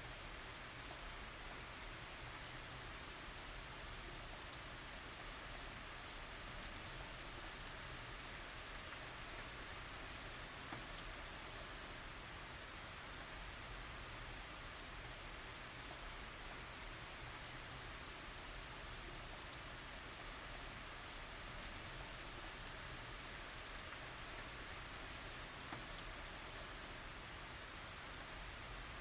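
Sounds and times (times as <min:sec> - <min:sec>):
rain falling on surfaces: 0:00.0 - 0:29.0.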